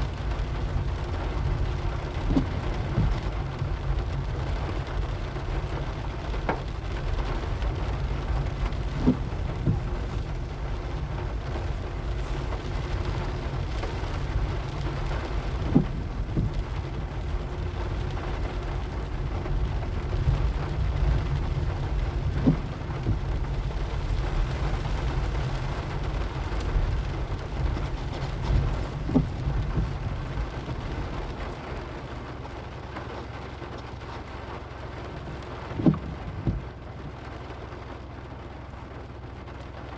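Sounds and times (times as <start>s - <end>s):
car driving rumble: 0.0s - 39.9s
steady rain: 0.0s - 39.9s
short thump: 8.9s - 10.3s, 15.6s - 16.6s, 22.4s - 23.2s, 27.6s - 31.4s, 35.8s - 36.7s.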